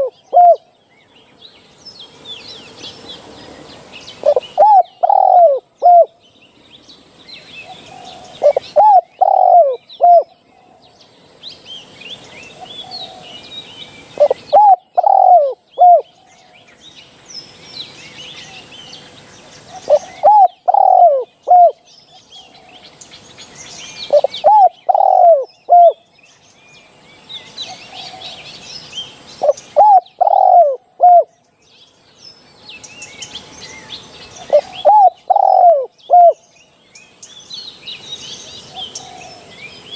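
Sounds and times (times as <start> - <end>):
dove cooing: 0.0 - 0.6, 4.2 - 6.2, 7.6 - 10.8, 14.2 - 16.1, 19.6 - 21.8, 24.0 - 26.0, 29.4 - 31.3, 34.4 - 36.4
small birds chirping faintly: 0.0 - 39.9.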